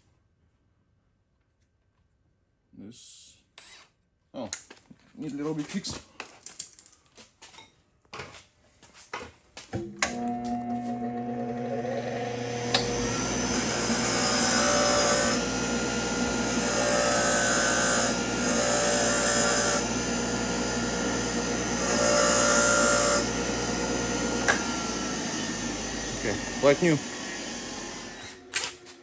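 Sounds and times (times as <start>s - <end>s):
cordless drill whining: 10.0s - 29.0s.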